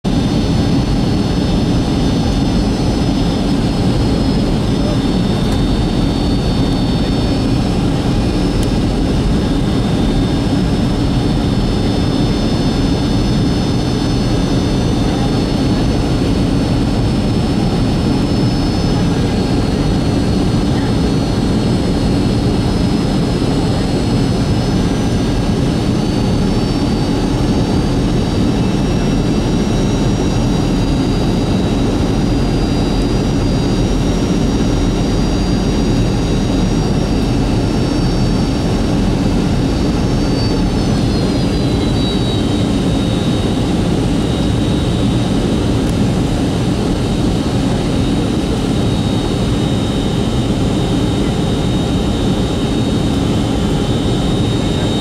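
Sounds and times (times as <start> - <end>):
jet engine roar in cabin: 0.0 - 55.0
high engine whines: 0.1 - 55.0.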